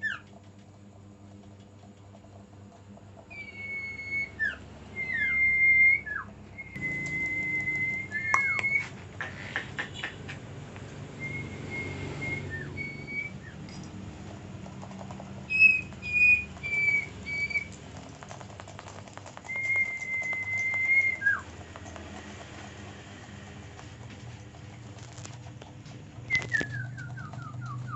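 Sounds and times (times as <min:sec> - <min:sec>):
songbird whistling: 0:03.3 - 0:09.0, 0:11.2 - 0:13.7, 0:15.4 - 0:17.8, 0:19.4 - 0:21.5, 0:26.2 - 0:27.9.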